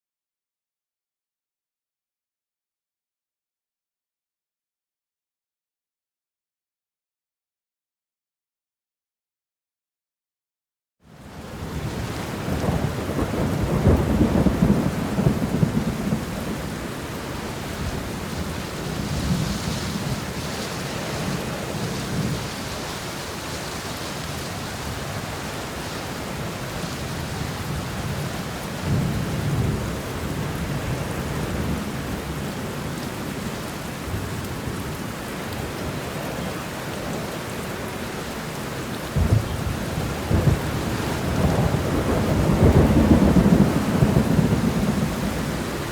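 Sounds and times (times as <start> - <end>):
rain hissing: 11.3 - 29.7, 34.6 - 45.9
thunder rumbling: 11.6 - 32.4, 39.2 - 45.9.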